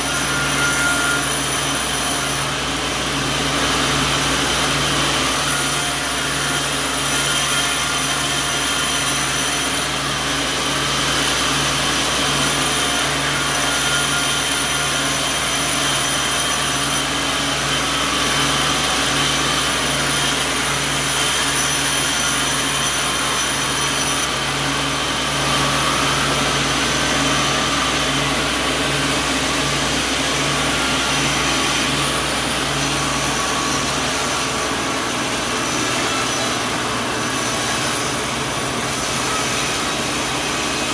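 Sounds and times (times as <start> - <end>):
sawmill machinery drone: 0.0 - 40.9.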